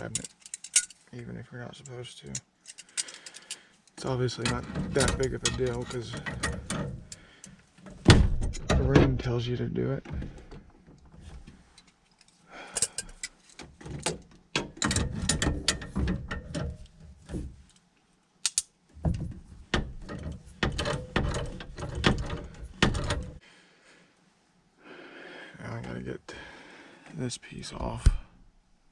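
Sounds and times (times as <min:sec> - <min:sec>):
metal tools clicking on pipe fittings: 0:00.0 - 0:01.0, 0:01.8 - 0:07.6, 0:11.7 - 0:17.0, 0:18.4 - 0:18.7.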